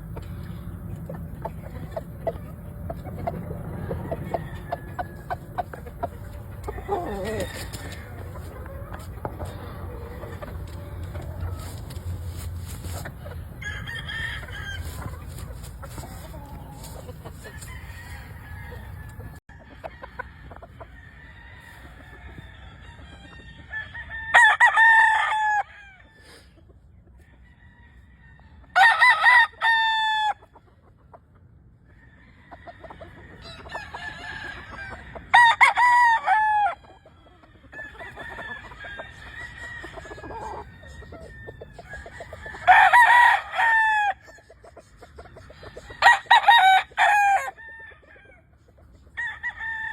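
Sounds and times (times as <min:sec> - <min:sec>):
chickens clucking: 0:00.0 - 0:23.8, 0:29.3 - 0:49.9
roosters crowing: 0:00.0 - 0:26.5, 0:27.2 - 0:30.5, 0:31.9 - 0:49.9
distant rooster crowing: 0:03.6 - 0:05.7, 0:06.7 - 0:08.4, 0:13.6 - 0:15.0, 0:16.4 - 0:26.5, 0:32.3 - 0:36.9, 0:37.7 - 0:44.4, 0:45.4 - 0:48.4, 0:49.2 - 0:49.9.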